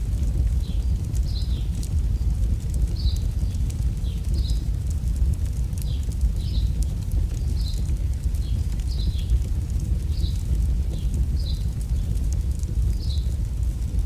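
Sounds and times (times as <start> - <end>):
campfire crackling and popping: 0.0 - 14.0
steady low rumble: 0.0 - 14.0.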